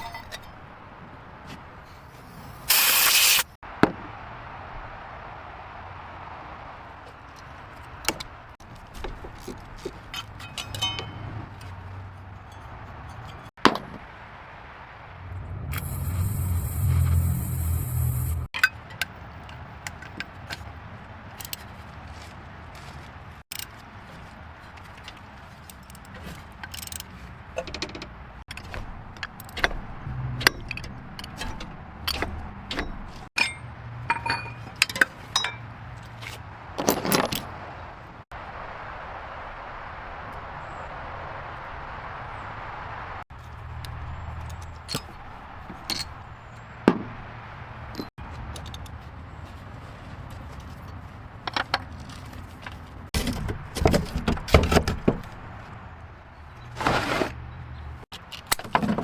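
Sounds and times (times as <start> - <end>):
metallic clinks and knocks: 10.2 - 11.4, 30.4 - 35.7
low hum: 14.9 - 18.5.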